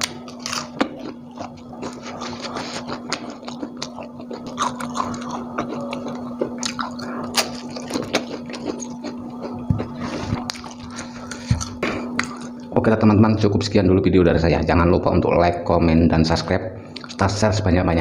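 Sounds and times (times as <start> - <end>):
wet chewing and mouth smacks: 0.0 - 12.7
steady low hum: 0.0 - 18.0.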